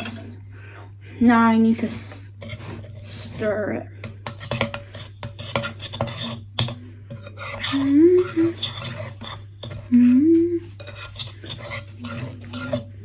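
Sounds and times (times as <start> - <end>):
spoon scraping a mixing bowl: 0.0 - 0.4, 1.8 - 13.0.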